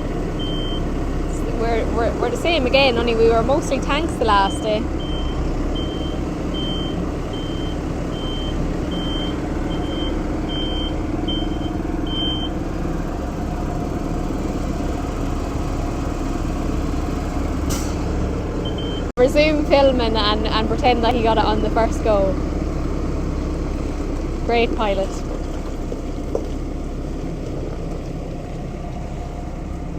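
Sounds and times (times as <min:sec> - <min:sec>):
tractor diesel engine running: 0:00.0 - 0:29.9
reversing alarm beeps: 0:00.4 - 0:00.8, 0:04.3 - 0:12.6, 0:18.6 - 0:19.1.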